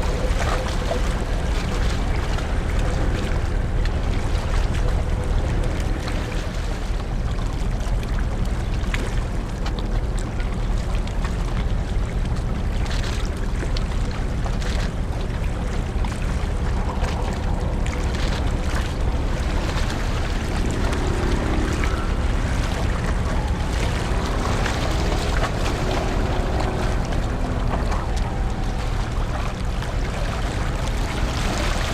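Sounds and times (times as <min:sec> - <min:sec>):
rushing water: 0:00.0 - 0:31.9
ship engines rumbling: 0:14.9 - 0:31.9.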